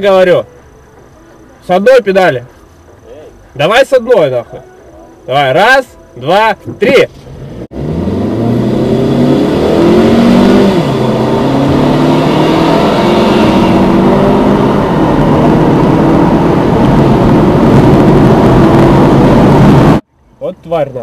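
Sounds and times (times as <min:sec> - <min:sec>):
car engine accelerating: 0:06.7 - 0:20.0.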